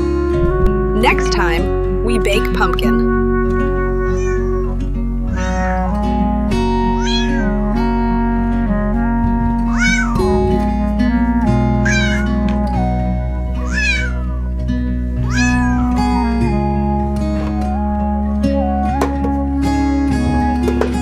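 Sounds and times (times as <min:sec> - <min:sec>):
background music of held notes: 0:00.0 - 0:21.0
cat meowing: 0:04.0 - 0:06.0, 0:07.0 - 0:07.6, 0:09.7 - 0:10.2, 0:11.8 - 0:12.4, 0:13.6 - 0:14.5, 0:15.2 - 0:16.4.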